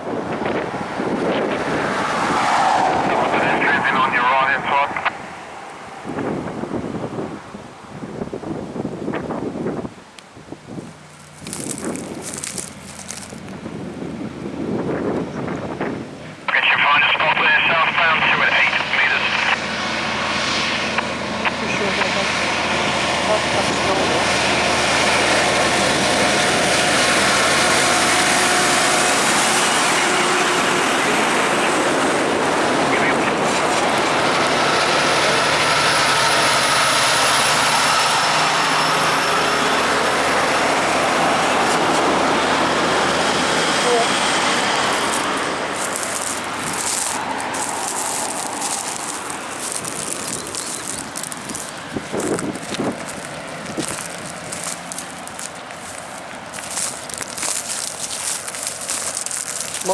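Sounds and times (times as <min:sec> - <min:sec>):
crackling rustling near microphone: 0:03.0 - 0:06.7, 0:10.0 - 0:14.1, 0:27.3 - 0:35.2, 0:41.4 - 0:59.9
vehicle driving past: 0:19.6 - 0:57.6.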